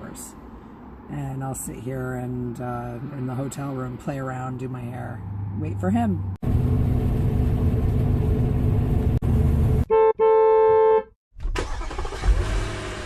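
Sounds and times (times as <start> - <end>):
car rumble: 0.0 - 10.0
car horn honking: 9.9 - 11.1.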